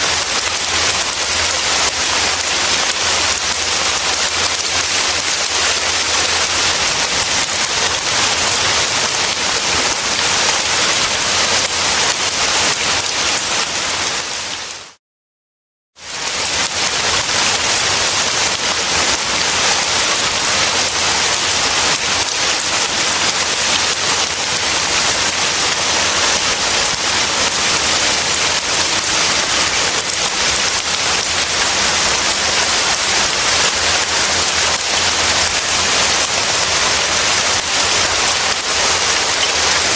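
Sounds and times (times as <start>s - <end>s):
dense rain falling: 0.0s - 15.0s, 16.0s - 39.9s.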